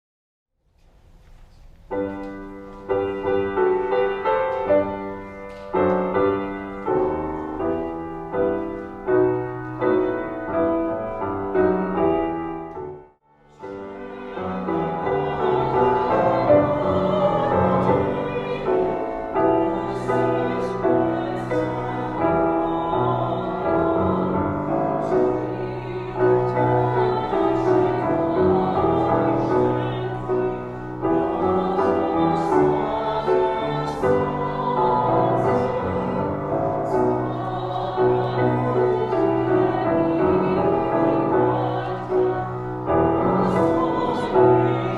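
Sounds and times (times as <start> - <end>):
piano chords: 1.8 - 44.9
voices singing: 13.5 - 44.9.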